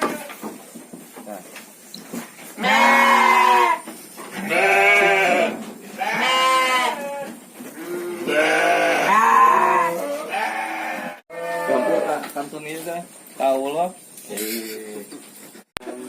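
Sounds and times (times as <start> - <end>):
sheep bleating: 2.6 - 12.2.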